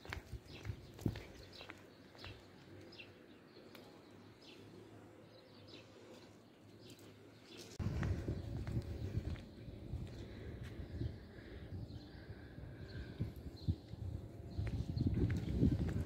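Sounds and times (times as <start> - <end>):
small birds chirping: 0.0 - 16.0
low rumble: 7.8 - 16.0.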